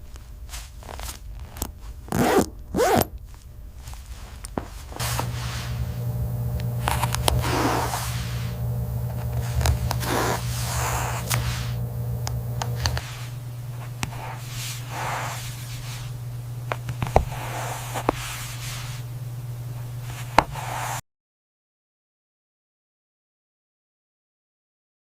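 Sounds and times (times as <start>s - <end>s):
machine hum: 4.9s - 20.6s
hisses: 5.0s - 16.2s.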